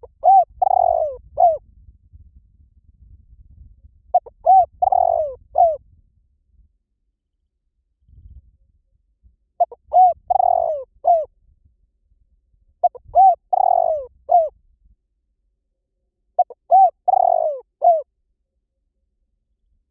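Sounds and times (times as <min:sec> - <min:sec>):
dove cooing: 0:00.0 - 0:01.6, 0:04.1 - 0:05.8, 0:09.6 - 0:11.3, 0:12.8 - 0:14.5, 0:16.4 - 0:18.1.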